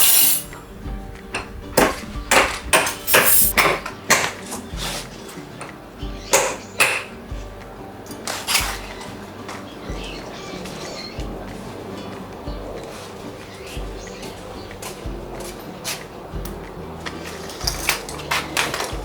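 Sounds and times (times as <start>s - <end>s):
hard objects clinking: 0.0s - 0.6s, 1.3s - 4.6s
background music: 0.0s - 19.0s.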